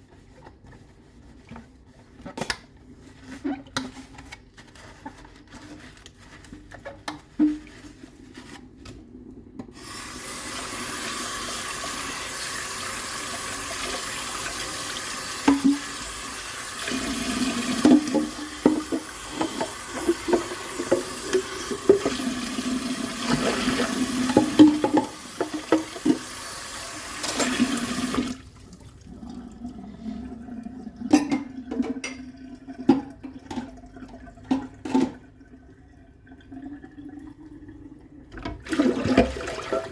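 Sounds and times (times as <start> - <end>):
tap water running into sink: 9.6 - 29.8, 38.3 - 39.9.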